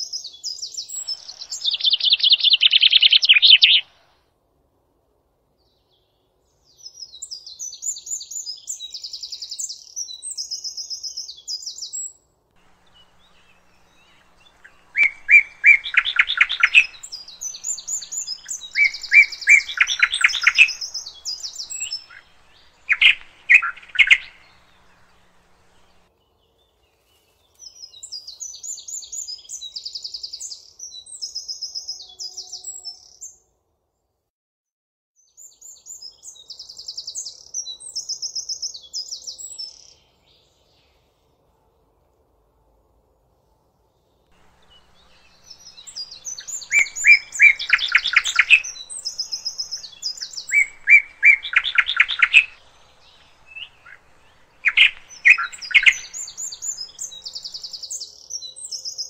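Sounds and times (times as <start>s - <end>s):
lower louder bird song: 0.0s - 4.4s, 5.4s - 34.2s, 35.2s - 59.0s
bird rapid high trilling: 12.8s - 26.0s, 44.6s - 57.9s.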